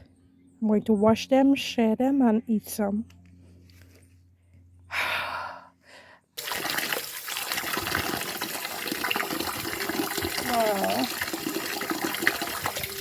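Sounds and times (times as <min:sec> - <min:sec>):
tap water running: 0:06.4 - 0:13.0.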